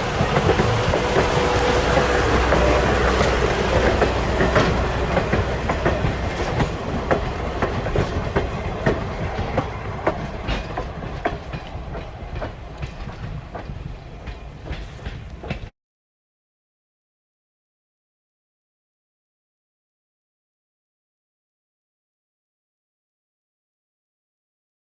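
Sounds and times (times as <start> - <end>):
train rumble: 0.0 - 15.7
train wheels clicking over rail joints: 0.0 - 15.7.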